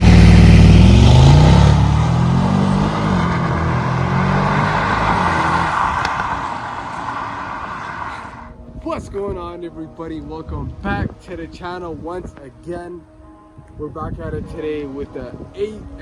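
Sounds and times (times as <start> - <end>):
car engine accelerating hard: 0.0 - 8.5.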